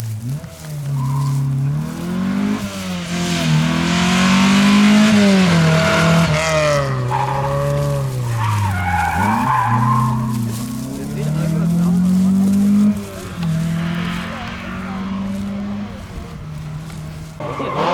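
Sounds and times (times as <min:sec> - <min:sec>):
rally car engine revving: 0:00.0 - 0:17.9
tyre noise hissing: 0:00.0 - 0:17.9.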